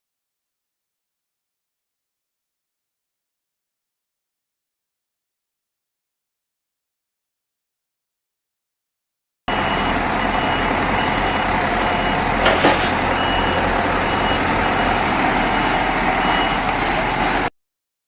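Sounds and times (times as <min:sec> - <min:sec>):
high-pitched reversing beeper: 0:09.5 - 0:17.2
truck engine running: 0:09.5 - 0:17.5.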